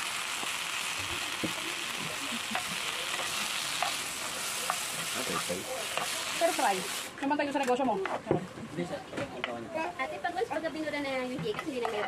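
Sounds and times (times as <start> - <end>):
greens sizzling in a frying pan: 0.0 - 7.7.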